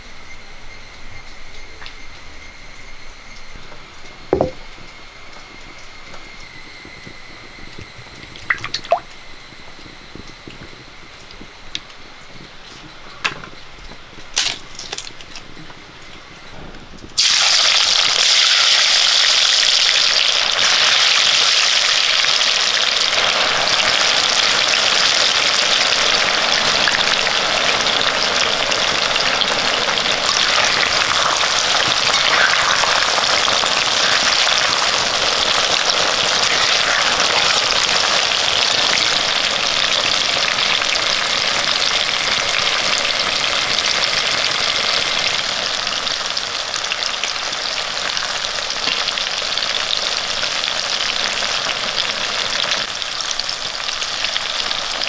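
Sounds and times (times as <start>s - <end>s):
mango slices sizzling in oil: 17.2s - 55.0s.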